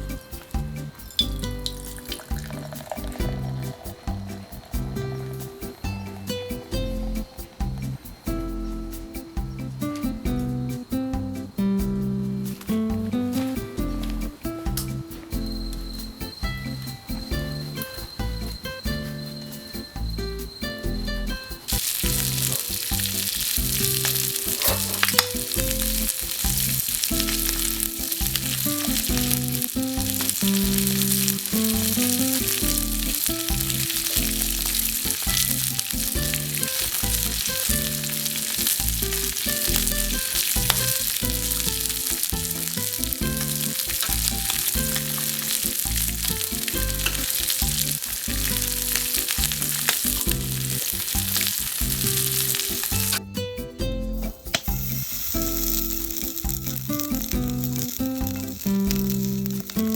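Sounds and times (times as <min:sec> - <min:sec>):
background music: 0:00.0 - 0:59.9
meat sizzling in a frying pan: 0:21.5 - 0:53.2, 0:54.5 - 0:59.9.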